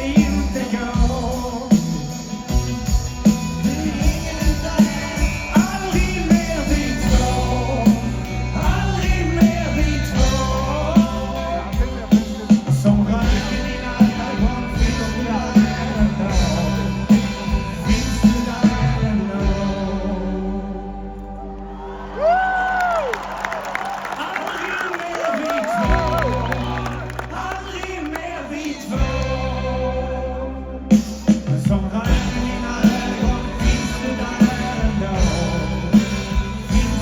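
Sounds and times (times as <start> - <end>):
steady drum beat: 0.0 - 19.8, 25.4 - 27.8, 30.9 - 37.0
live rock band playing: 0.0 - 21.4, 25.4 - 37.0.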